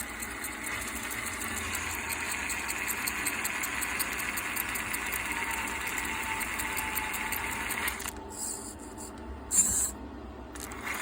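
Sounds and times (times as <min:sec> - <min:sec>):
rc car drivetrain ticking and whirring: 0:00.0 - 0:08.5, 0:10.5 - 0:11.0.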